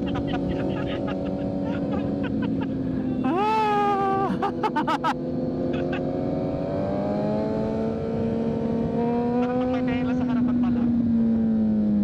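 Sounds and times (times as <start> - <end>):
motorcycle engine accelerating: 4.8 - 10.0.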